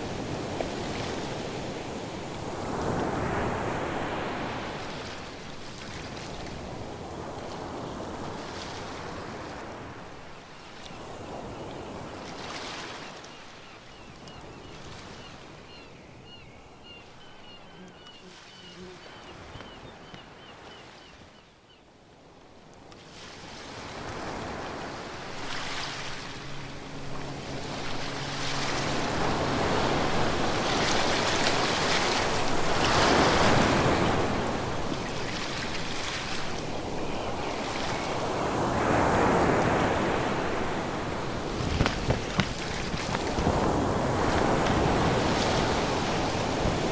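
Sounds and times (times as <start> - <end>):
ocean waves breaking ashore: 0.0 - 21.0, 23.0 - 46.9.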